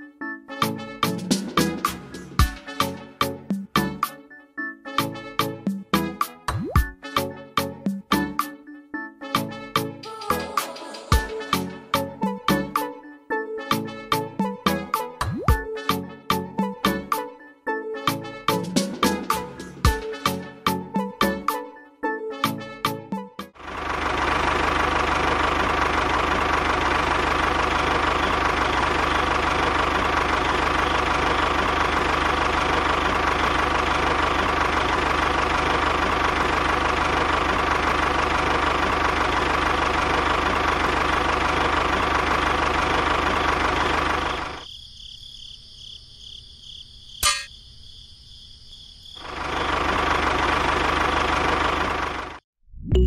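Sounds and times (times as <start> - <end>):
tractor engine chugging: 23.6 - 44.6, 49.2 - 52.4.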